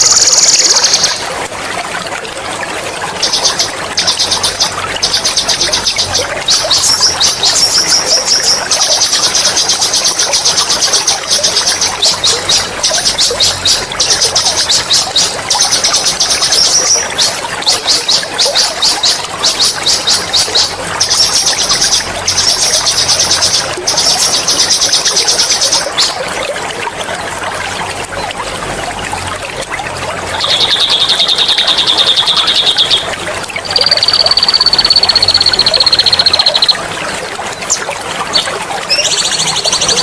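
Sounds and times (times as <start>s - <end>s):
songbird trilling: 0.0s - 1.2s, 33.7s - 36.8s
running water trickling: 0.0s - 40.0s.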